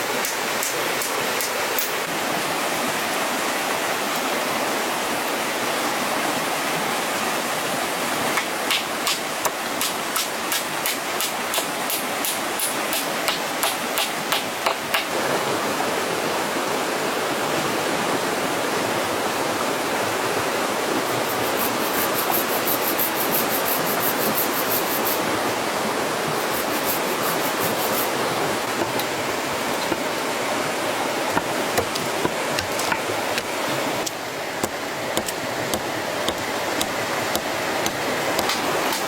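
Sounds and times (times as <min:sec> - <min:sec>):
sharp knocks: 0:31.3 - 0:38.6.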